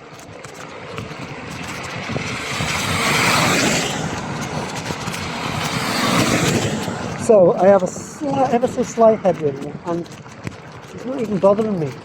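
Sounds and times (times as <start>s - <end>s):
tyres hissing on wet road: 2.5s - 7.2s.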